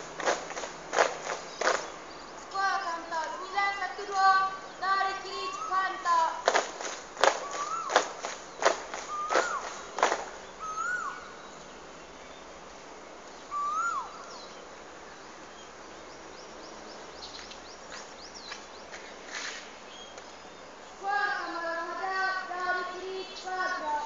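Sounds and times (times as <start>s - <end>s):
quick high bird chirps: 0.2s - 2.2s, 5.5s - 11.2s
bird whistle rising and falling: 7.3s - 11.4s, 13.5s - 14.3s.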